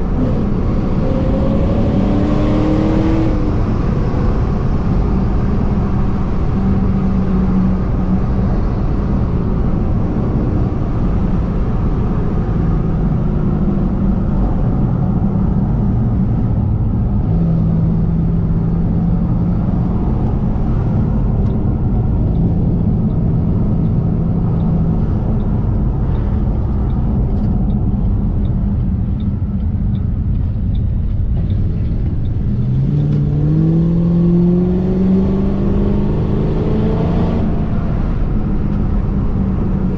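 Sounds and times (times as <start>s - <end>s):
car engine revving: 0.0s - 39.9s
road noise: 0.0s - 39.9s
faint regular ticking: 23.8s - 33.1s.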